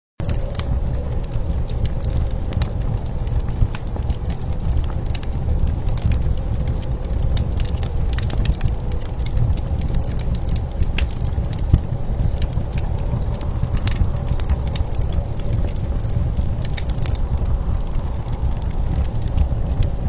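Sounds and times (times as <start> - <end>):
blizzard wind rumbling: 0.2 - 20.0
wood fire crackling: 0.2 - 20.0.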